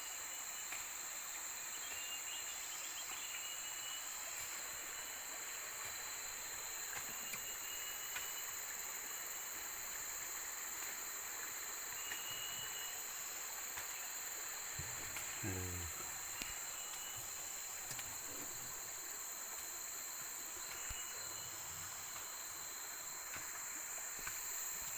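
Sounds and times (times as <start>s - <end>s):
insects chorus: 0.0s - 24.9s
low voice-like call: 14.8s - 16.2s.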